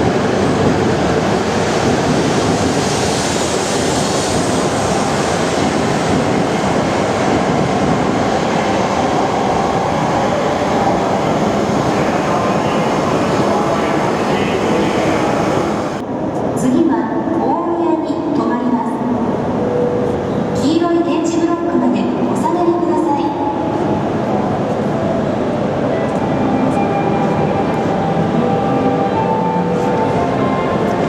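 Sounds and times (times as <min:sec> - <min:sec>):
train wheel and air rush: 0:00.0 - 0:16.6.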